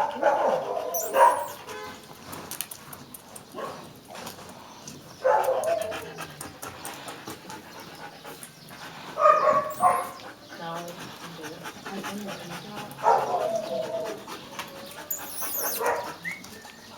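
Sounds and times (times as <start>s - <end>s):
dog yipping: 0.2s - 1.6s, 9.2s - 10.2s, 14.8s - 16.8s
dog whining: 0.9s - 1.6s, 13.4s - 16.9s.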